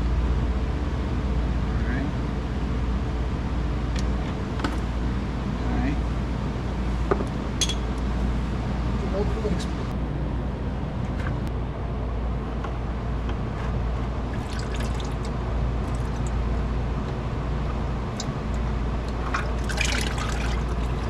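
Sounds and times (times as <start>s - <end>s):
oil trickling and dripping: 14.3s - 16.5s, 17.6s - 21.0s.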